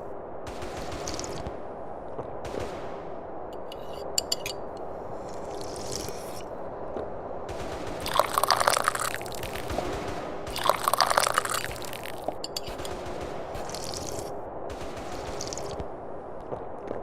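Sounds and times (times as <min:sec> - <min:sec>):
tea slurping from a cup: 0:05.2 - 0:06.5, 0:08.0 - 0:09.8, 0:10.5 - 0:12.8, 0:13.6 - 0:14.3, 0:15.4 - 0:15.8.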